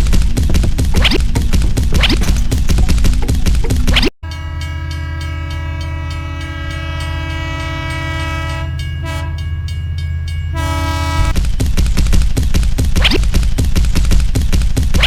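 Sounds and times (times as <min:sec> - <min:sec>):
train rumbling: 0:00.0 - 0:15.0
train horn blowing a chord: 0:04.2 - 0:09.5, 0:10.5 - 0:11.4.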